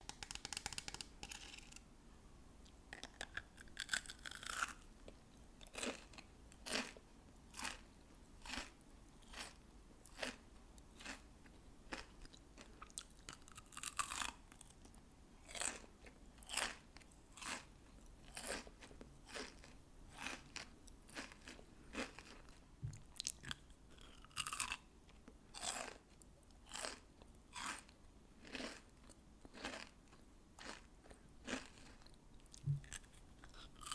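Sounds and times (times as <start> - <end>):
candy crunching: 0.1 - 1.8, 2.9 - 4.9, 11.9 - 14.8, 30.6 - 33.9.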